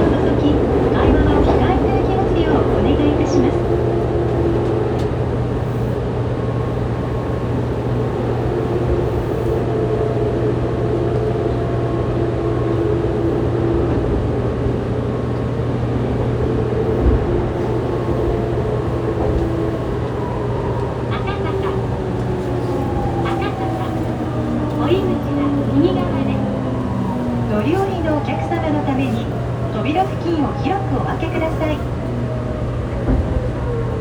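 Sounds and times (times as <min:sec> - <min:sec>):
train wheels rumbling: 0:00.0 - 0:34.0.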